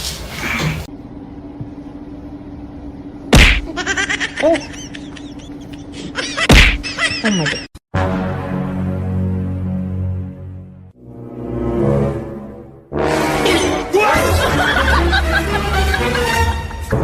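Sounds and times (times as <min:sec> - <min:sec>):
loud smacks: 0:03.4 - 0:03.7, 0:06.5 - 0:06.8.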